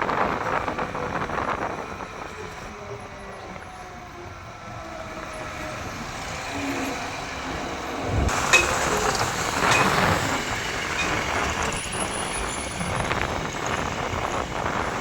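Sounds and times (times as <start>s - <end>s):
road noise: 0.0s - 15.0s
vehicle engine: 5.3s - 15.0s.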